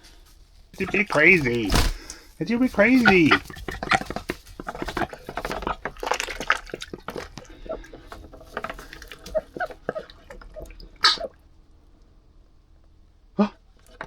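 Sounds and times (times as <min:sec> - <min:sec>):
duck splashing in water: 0:00.0 - 0:12.0.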